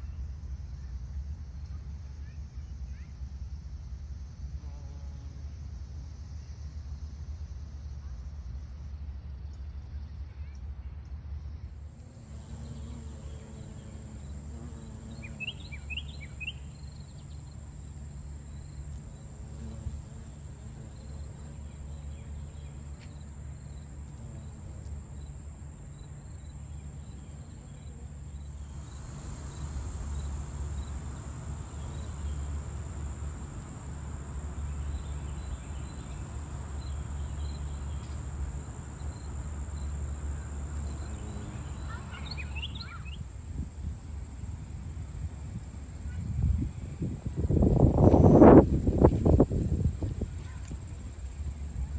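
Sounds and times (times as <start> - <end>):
insects singing high note: 12.2 - 25.4, 26.0 - 43.2
bird chirps: 15.0 - 17.4, 41.0 - 43.2.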